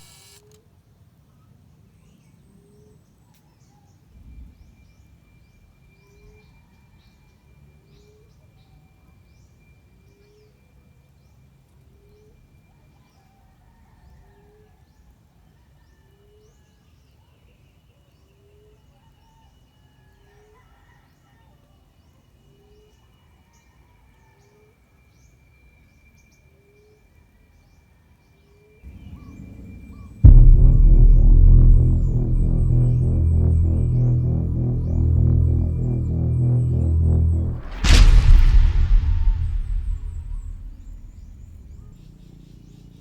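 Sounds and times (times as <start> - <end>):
music: 29.5 - 41.8
steady high-pitched tone: 29.8 - 41.9.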